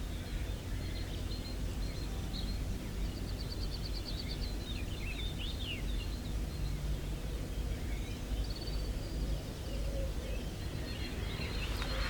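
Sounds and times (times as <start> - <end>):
wind noise on microphone: 10.2 - 12.0.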